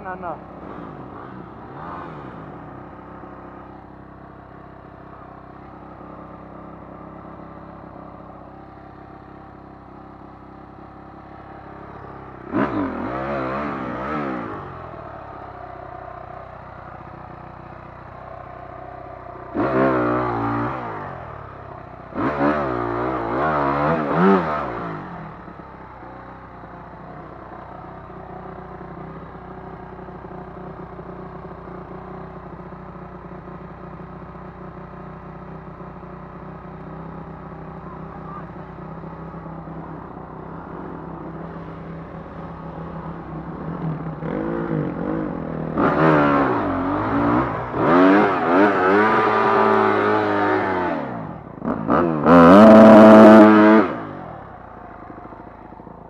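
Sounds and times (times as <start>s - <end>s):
dirt bike engine revving: 0.0s - 18.1s, 19.3s - 25.6s, 37.3s - 55.2s.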